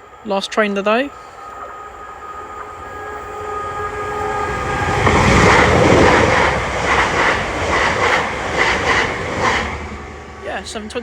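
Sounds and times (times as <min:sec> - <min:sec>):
electric train rushing past: 0:00.0 - 0:11.0.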